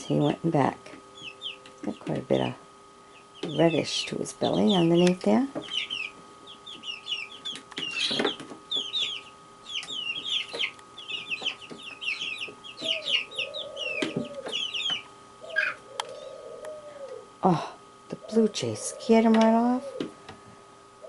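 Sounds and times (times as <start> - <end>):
birds chirping rapidly: 1.0 - 17.4
lower longer bird calls: 5.6 - 17.4.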